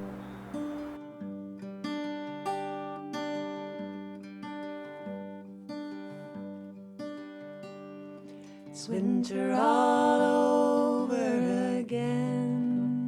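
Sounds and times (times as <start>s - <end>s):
acoustic guitar plucked notes: 0.0s - 10.4s.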